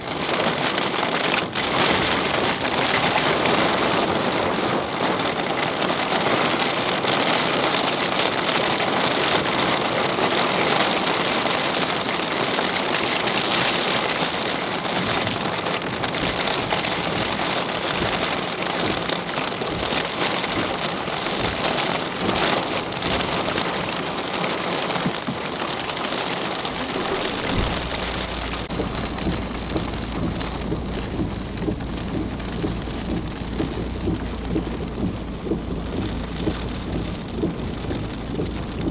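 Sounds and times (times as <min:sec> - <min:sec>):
heavy rain pouring: 0:00.0 - 0:38.9
low steady rumble: 0:26.7 - 0:38.9.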